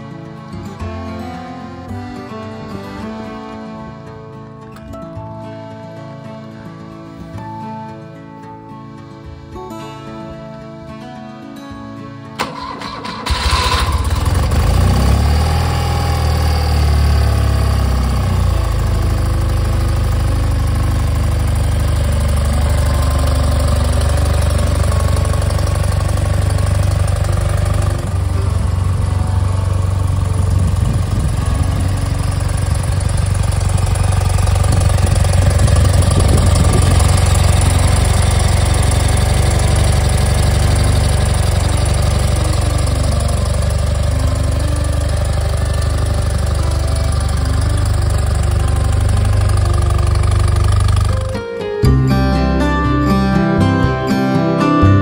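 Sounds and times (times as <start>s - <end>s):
motorcycle engine starting and idling: 12.4s - 52.0s.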